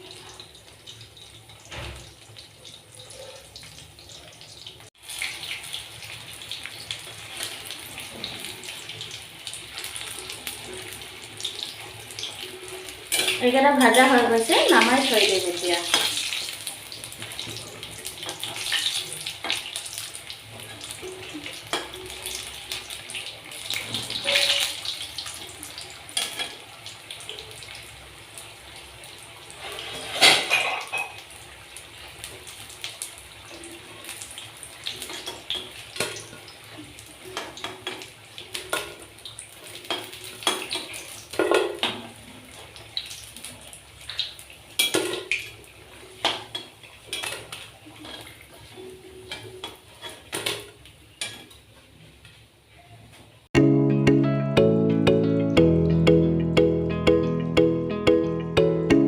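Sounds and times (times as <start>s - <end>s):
frying oil sizzling: 0.0s - 53.5s
metal utensils clinking and scraping: 12.8s - 14.4s, 23.7s - 24.8s, 29.6s - 31.2s
utensils clattering: 29.7s - 31.2s.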